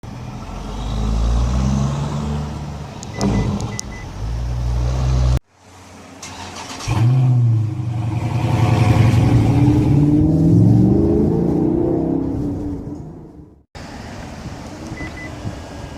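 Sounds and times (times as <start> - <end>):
car engine starting: 0.8 - 13.7
car engine revving: 6.2 - 13.6.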